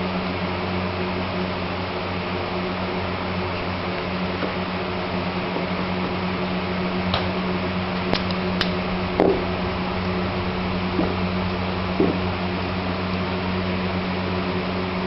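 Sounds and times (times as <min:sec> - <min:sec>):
low hum: 0:00.0 - 0:15.0
heavier knock: 0:08.6 - 0:10.1, 0:10.8 - 0:12.4.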